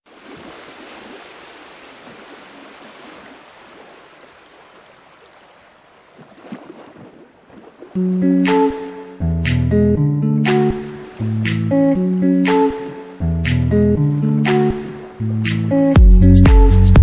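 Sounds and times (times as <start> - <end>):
rushing stream water: 0.0 - 9.2
music with plucked notes: 8.0 - 17.0.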